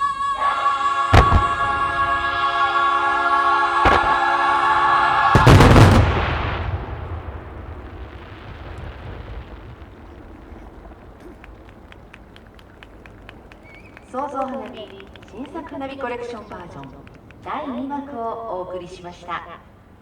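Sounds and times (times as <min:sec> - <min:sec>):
fireworks booming: 0:01.0 - 0:17.9.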